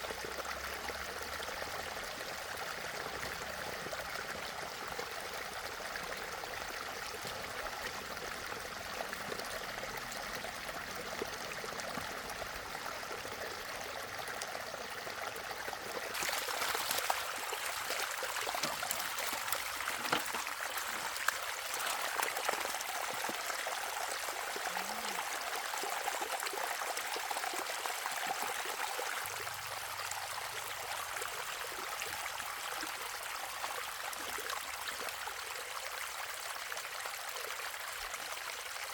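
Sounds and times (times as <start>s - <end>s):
water running and splashing: 15.8s - 31.9s.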